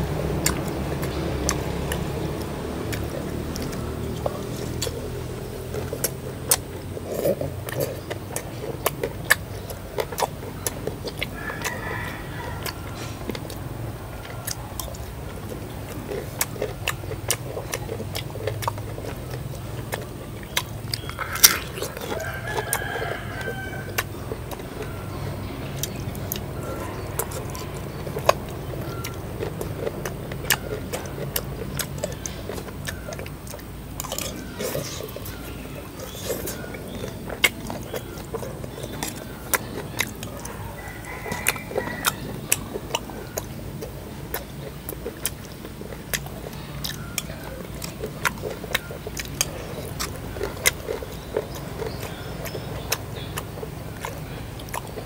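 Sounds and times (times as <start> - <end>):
crunchy bites and chewing: 0.0 - 55.0
rooster crowing: 11.2 - 14.6, 21.0 - 31.0, 39.6 - 43.4.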